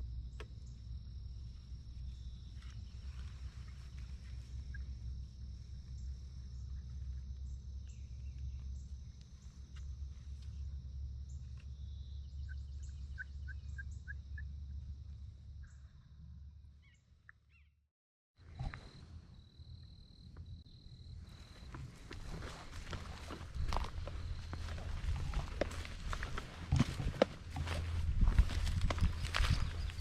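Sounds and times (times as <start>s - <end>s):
bird chirping: 11.7s - 14.6s
insects buzzing: 18.5s - 30.0s.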